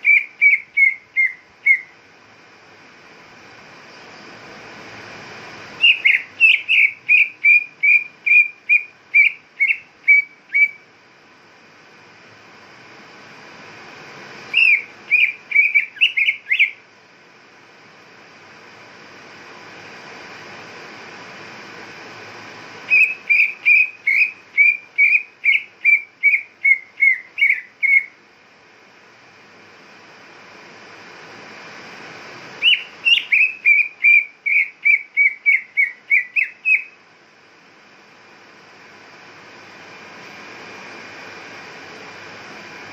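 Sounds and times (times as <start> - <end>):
bird whistling sharp notes: 0.0 - 1.9, 5.8 - 10.8, 14.5 - 16.8, 22.9 - 28.1, 32.6 - 37.0
faint steady hiss: 0.0 - 42.9.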